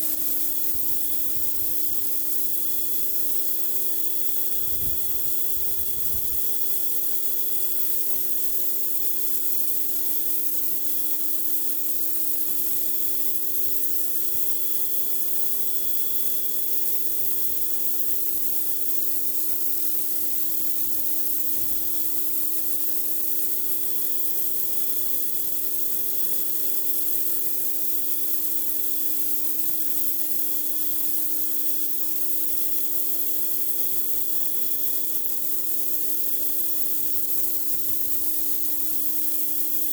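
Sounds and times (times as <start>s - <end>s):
pressure washer water spray hissing: 0.0s - 1.4s.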